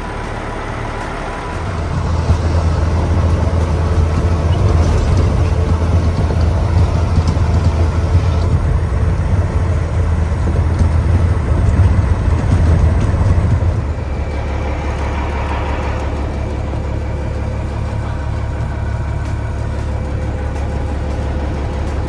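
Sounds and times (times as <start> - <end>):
diesel truck engine droning: 0.0 - 22.0.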